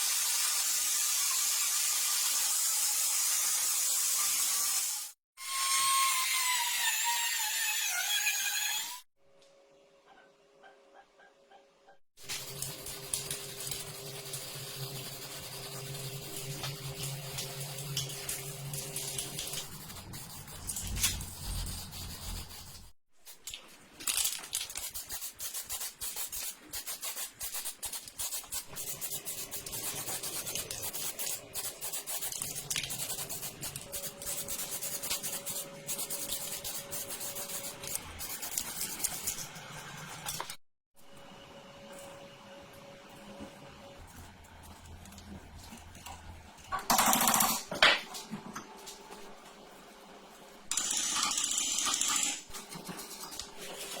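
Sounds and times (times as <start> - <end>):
hand sanding strokes: 19.4 - 23.0, 24.9 - 39.4.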